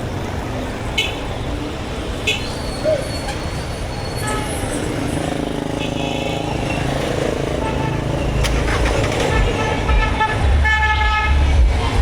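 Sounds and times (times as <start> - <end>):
heavy vehicle engine rumbling: 6.5 - 12.0.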